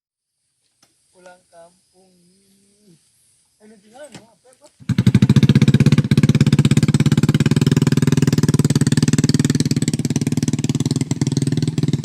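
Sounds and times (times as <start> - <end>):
small engine running: 4.8 - 12.0.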